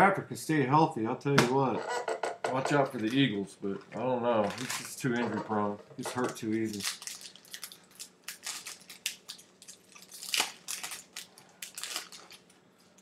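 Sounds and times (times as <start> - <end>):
wrapper crinkling and tearing: 4.3 - 13.0.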